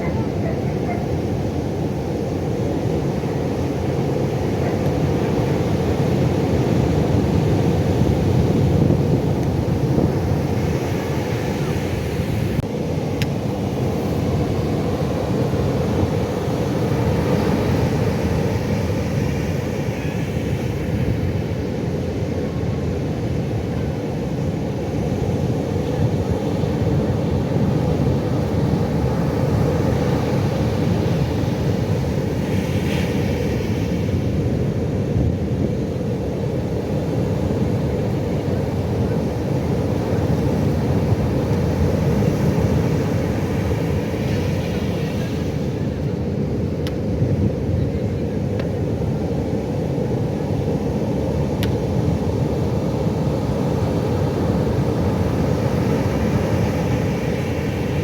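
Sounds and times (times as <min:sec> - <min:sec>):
ocean waves breaking: 0:00.0 - 0:22.3, 0:48.8 - 0:58.0.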